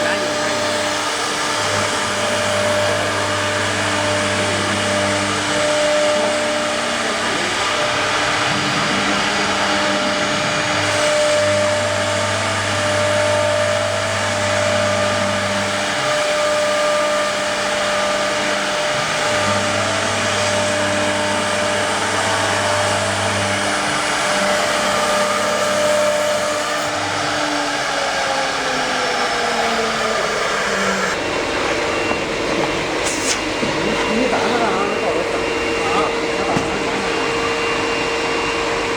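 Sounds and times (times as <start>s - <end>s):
hiss of wood cutting: 0.0s - 31.3s, 32.8s - 38.9s
axis drives humming: 0.0s - 38.9s
router spindle whine: 0.0s - 38.9s.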